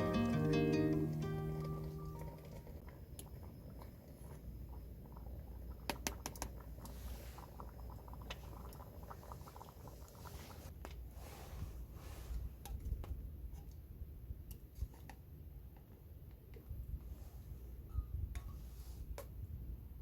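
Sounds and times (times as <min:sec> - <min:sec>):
plucked-string music: 0:00.0 - 0:02.5.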